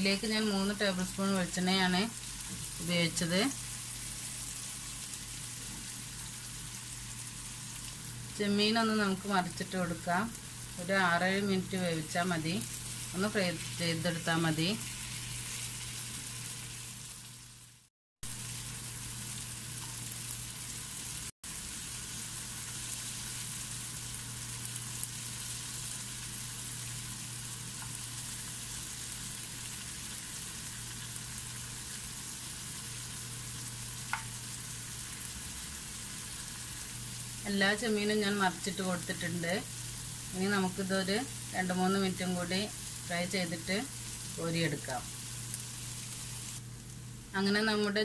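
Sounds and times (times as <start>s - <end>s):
prawns sizzling in oil: 0.0s - 47.8s.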